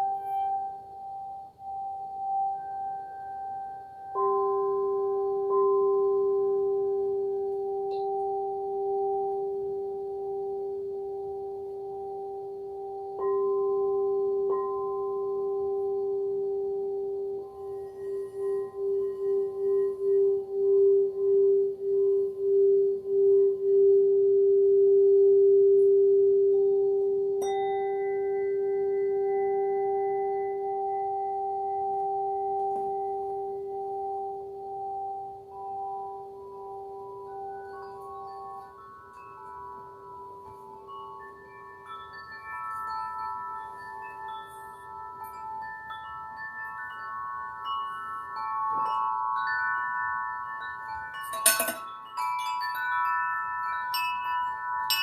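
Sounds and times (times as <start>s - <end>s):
singing bowl ringing: 0.0s - 55.0s
singing bowl strike ringing: 51.2s - 52.3s.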